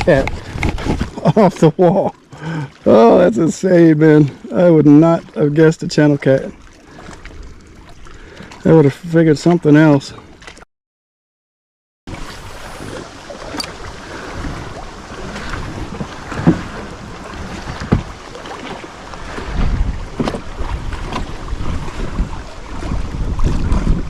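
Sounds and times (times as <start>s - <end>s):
wind buffeting microphone: 0.0s - 1.4s, 12.1s - 24.0s
water lapping at kayak: 0.0s - 10.7s, 12.1s - 24.0s.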